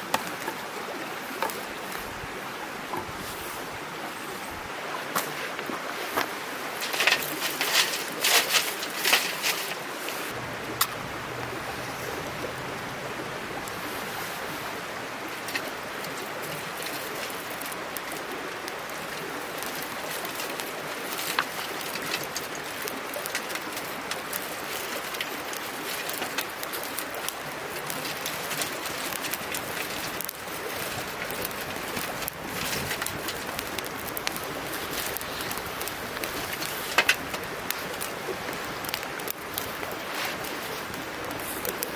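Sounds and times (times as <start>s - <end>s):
mountain stream babbling: 10.3s - 41.4s
dove cooing: 10.4s - 16.4s.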